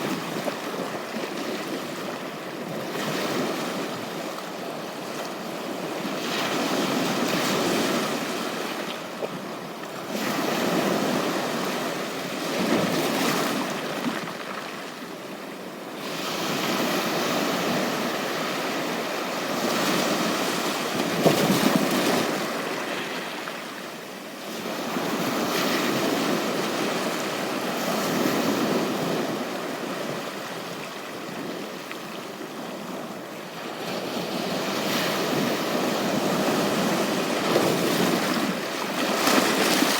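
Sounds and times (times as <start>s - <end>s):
sea waves breaking on beach: 16.0s - 39.9s.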